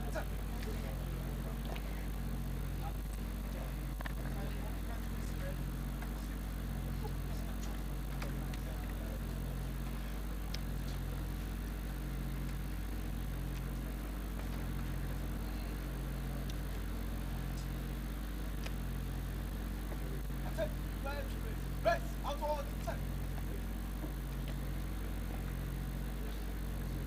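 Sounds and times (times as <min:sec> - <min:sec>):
low mechanical hum: 0:00.0 - 0:27.0
faint clicks: 0:18.5 - 0:18.8.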